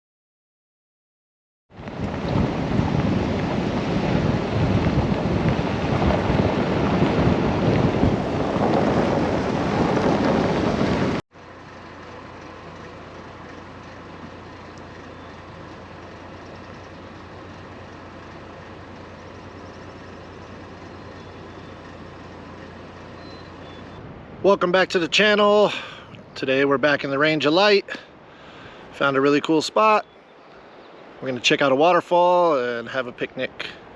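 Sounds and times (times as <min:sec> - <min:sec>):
low hum: 0:01.8 - 0:24.5.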